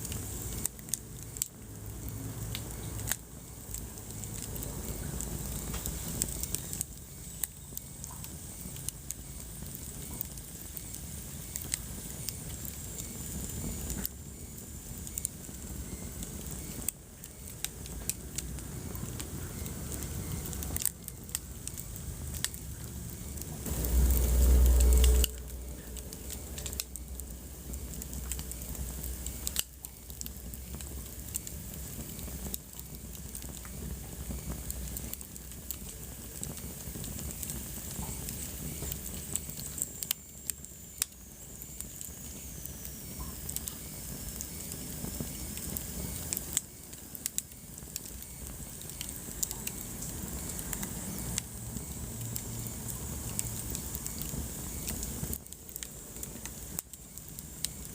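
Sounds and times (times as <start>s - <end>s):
wood fire crackling and popping: 0.0s - 57.9s
low rumble: 21.7s - 29.6s.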